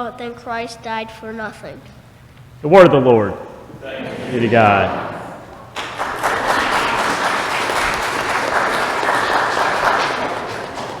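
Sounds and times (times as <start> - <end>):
crowd applauding: 4.8 - 11.0.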